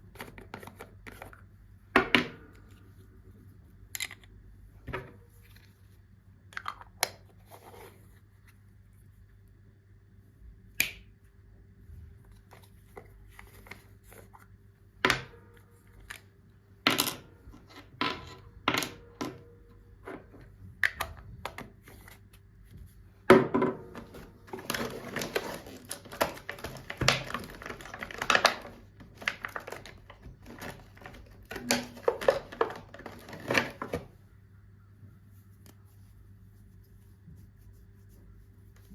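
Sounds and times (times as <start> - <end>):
plastic packaging rustling and crinkling: 24.0 - 34.2.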